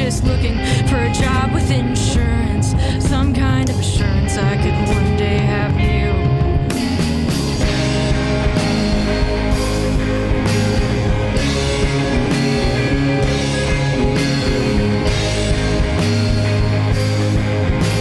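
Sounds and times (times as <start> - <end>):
rock band playing live: 0.0 - 18.0.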